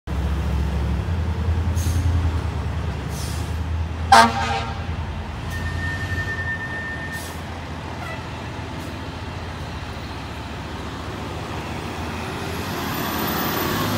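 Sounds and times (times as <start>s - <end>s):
fire engine rumbling: 0.1s - 13.9s
air horn blast: 4.1s - 5.0s.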